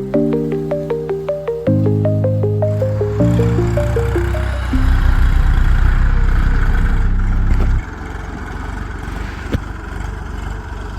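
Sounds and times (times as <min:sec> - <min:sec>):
tractor diesel engine running: 0:03.3 - 0:09.1.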